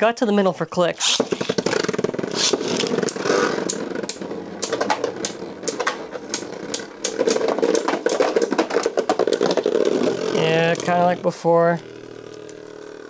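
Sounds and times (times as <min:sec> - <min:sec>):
spinning tops clicking together: 0:01.0 - 0:10.9
spinning tops whirring: 0:01.0 - 0:13.0.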